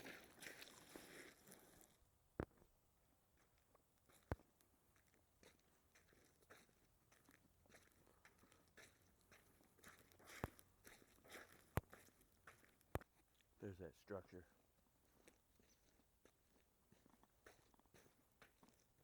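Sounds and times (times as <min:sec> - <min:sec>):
footsteps crunching on icy dirt: 0:00.0 - 0:02.6, 0:03.4 - 0:14.4, 0:15.0 - 0:19.0.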